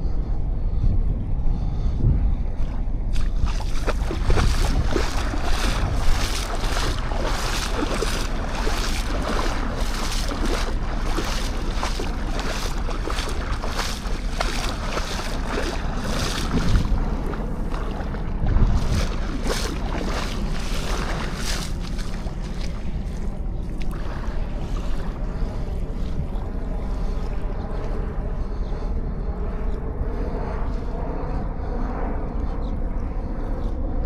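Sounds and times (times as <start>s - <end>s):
wind buffeting microphone: 0.0s - 34.0s
surf washing on sand beach: 3.5s - 23.0s.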